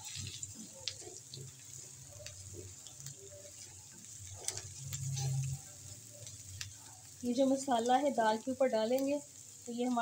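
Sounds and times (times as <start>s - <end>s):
spatula stirring: 0.0s - 7.7s
spices sizzling in a frying pan: 0.0s - 10.0s.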